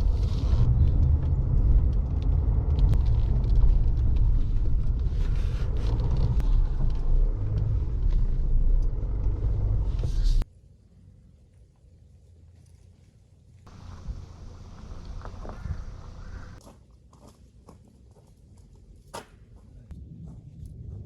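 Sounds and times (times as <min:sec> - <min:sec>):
car engine and road noise: 0:00.0 - 0:10.5, 0:13.7 - 0:16.6.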